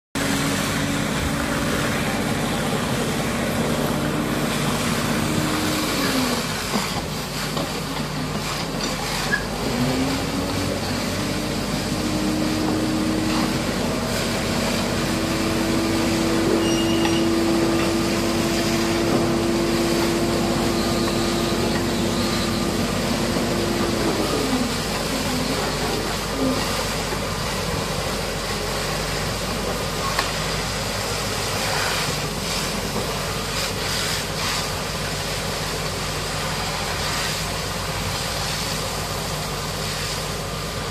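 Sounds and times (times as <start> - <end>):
diesel engine revving: 0.2 - 7.6, 9.0 - 34.0.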